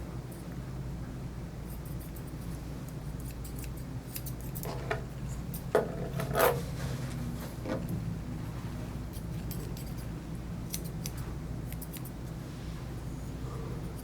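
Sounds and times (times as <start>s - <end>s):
shears snipping fur: 1.7s - 4.8s, 9.1s - 10.1s, 10.7s - 12.4s.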